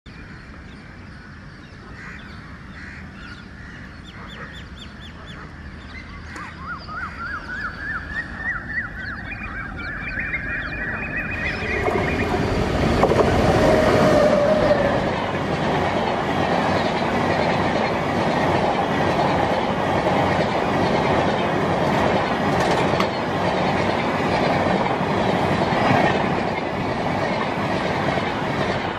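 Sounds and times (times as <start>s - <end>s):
train rushing past: 7.4s - 28.9s.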